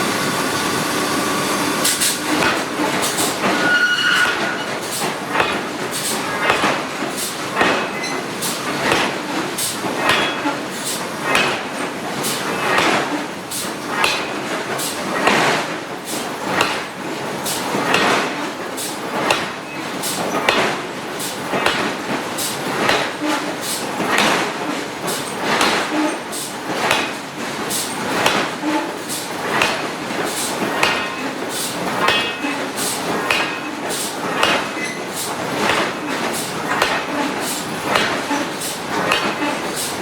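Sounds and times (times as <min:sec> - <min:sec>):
forging hammer striking hot steel: 0:00.0 - 0:08.1, 0:08.8 - 0:09.2, 0:10.0 - 0:10.4, 0:13.9 - 0:14.4, 0:16.6 - 0:16.9, 0:26.8 - 0:27.2, 0:29.5 - 0:29.9, 0:30.7 - 0:31.3, 0:32.0 - 0:32.5, 0:33.2 - 0:35.0, 0:35.6 - 0:36.0, 0:36.7 - 0:38.2, 0:39.0 - 0:39.9.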